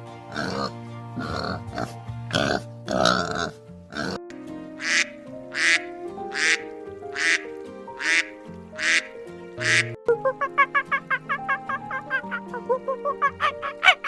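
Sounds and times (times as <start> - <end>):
background music with held notes: 0.0 - 14.0
duck quacking: 0.3 - 4.2, 4.8 - 14.0
animal call: 4.8 - 14.0.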